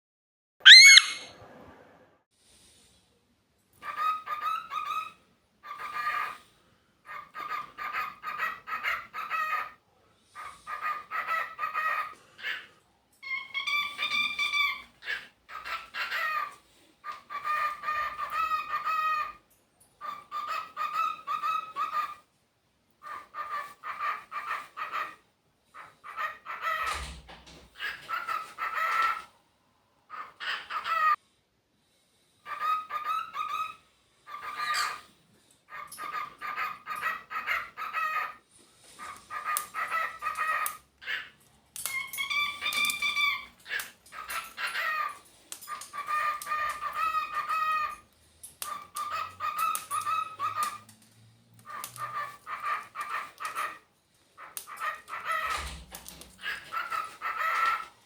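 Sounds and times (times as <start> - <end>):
cockatiels chattering and whistling: 0.7 - 1.2, 10.4 - 19.4, 32.5 - 35.1, 35.7 - 38.4, 39.0 - 48.0, 48.6 - 50.9, 51.6 - 53.8, 54.4 - 57.9.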